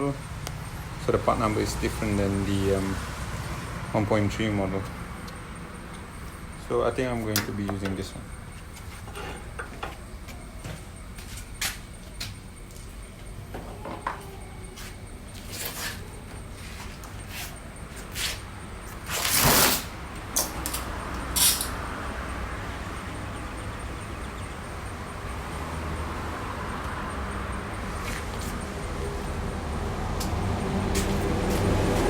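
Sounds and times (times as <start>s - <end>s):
metal parts clicking and knocking: 20.4s - 21.8s.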